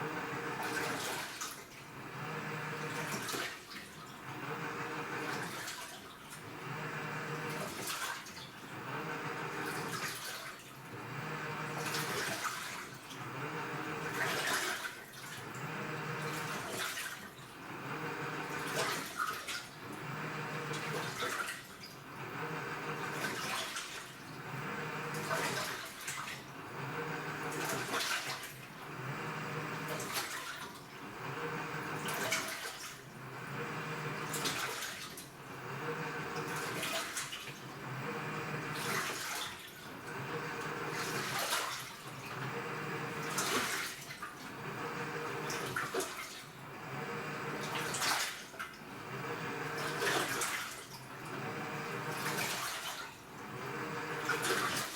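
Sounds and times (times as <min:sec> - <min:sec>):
washing machine motor humming: 0:00.0 - 0:54.9
water sloshing: 0:43.2 - 0:44.5.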